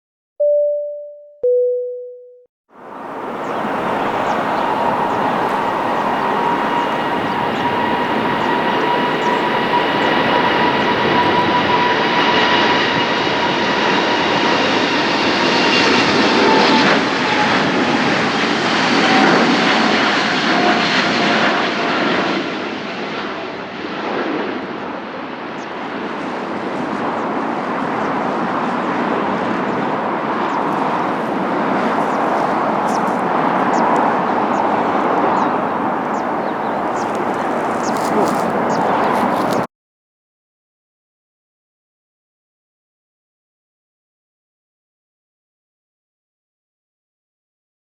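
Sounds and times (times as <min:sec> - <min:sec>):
jet engine rush and whine: 0:02.8 - 0:39.7.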